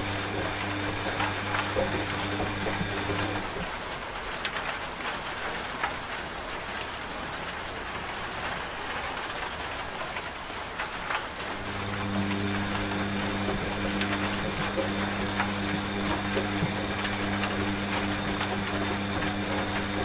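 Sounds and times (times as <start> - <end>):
washing machine hum: 0.0 - 4.8, 10.8 - 20.0
rain drops pattering: 0.0 - 20.0.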